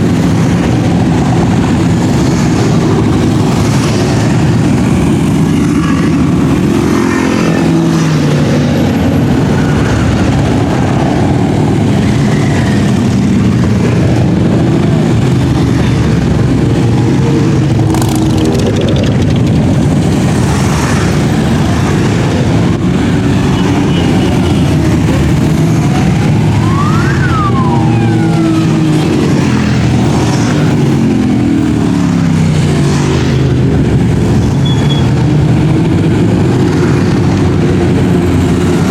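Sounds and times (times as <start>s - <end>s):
motorcycle engines passing: 0.0s - 38.9s
rising and falling tone: 16.9s - 20.4s, 25.8s - 29.7s.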